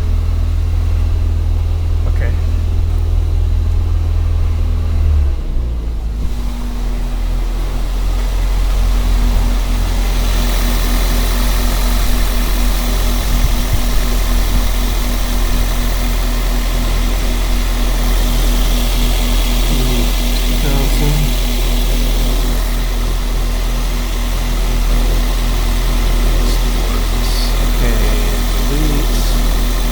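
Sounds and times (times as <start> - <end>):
car engine running: 0.0 - 29.9
bright hiss: 6.3 - 29.9.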